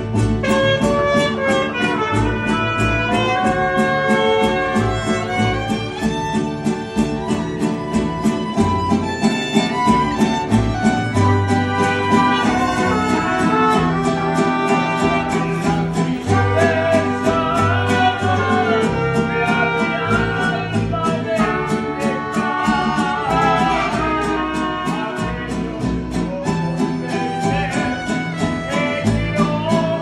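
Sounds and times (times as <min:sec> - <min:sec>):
low bass notes: 0:00.0 - 0:30.0
strummed guitars: 0:00.0 - 0:30.0
violins playing melody: 0:00.5 - 0:15.5
person singing: 0:11.4 - 0:30.0.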